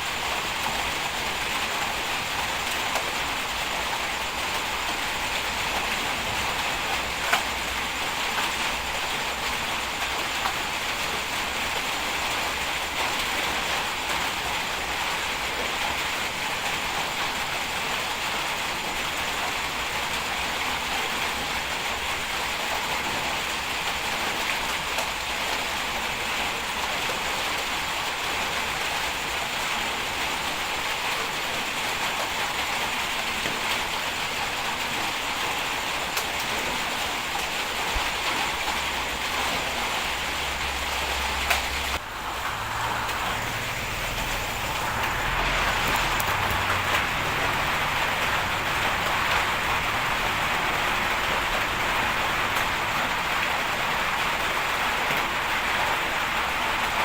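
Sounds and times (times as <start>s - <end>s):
heavy rain hissing: 0.0s - 57.0s
low rumble: 41.8s - 51.2s.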